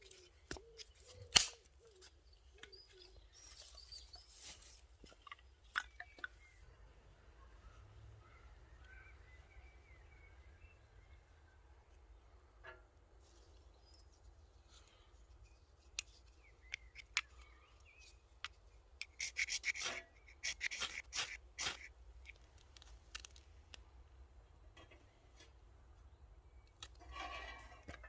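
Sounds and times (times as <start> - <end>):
sharp rasping scrapes: 19.0 - 21.9
scraping and crackling of camp stove: 19.0 - 23.4, 26.8 - 28.0.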